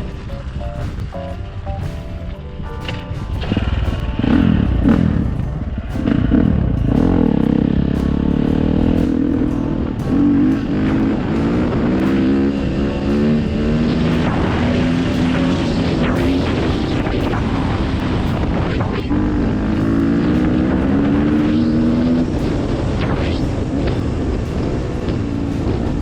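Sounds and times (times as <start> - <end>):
dirt bike engine revving: 2.8 - 26.0.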